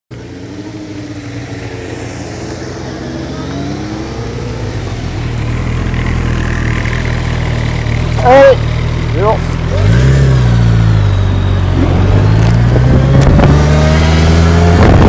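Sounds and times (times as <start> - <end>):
motorcycles riding past: 0.2 - 15.0
motorcycle engine idling: 4.8 - 9.8.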